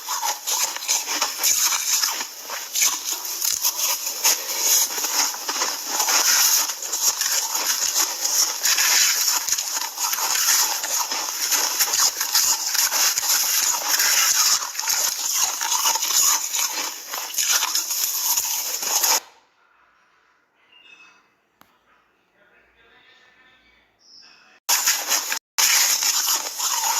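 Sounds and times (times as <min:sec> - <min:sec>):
ice being crunched and chewed: 0:00.0 - 0:19.2, 0:24.7 - 0:26.9.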